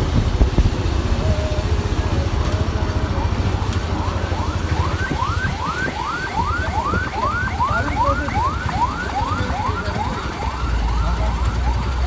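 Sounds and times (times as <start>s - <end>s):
electronic siren yelping: 3.0s - 11.8s.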